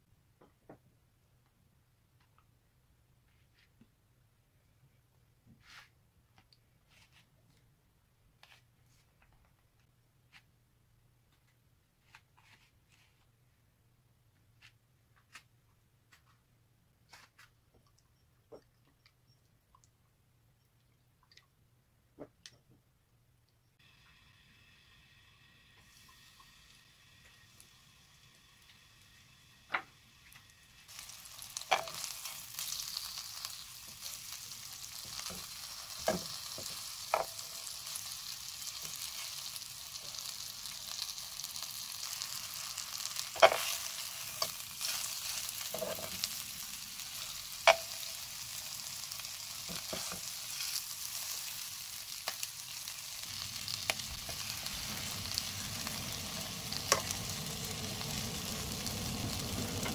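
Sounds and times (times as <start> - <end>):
squid sizzling in hot oil: 23.8 - 59.9
metal tongs tapping a pan: 31.7 - 32.1, 43.4 - 43.8, 47.6 - 48.2.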